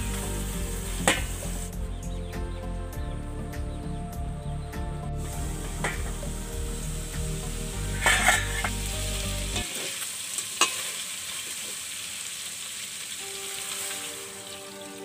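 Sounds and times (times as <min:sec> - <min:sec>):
chicken sizzling in a pot: 0:00.0 - 0:01.8, 0:05.2 - 0:15.0.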